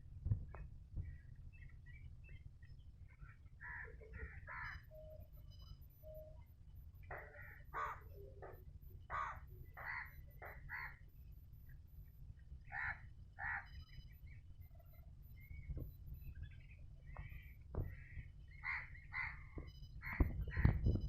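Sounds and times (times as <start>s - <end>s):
crows cawing: 3.6s - 4.9s, 7.1s - 8.2s, 9.1s - 11.0s, 12.7s - 13.8s, 17.8s - 20.7s.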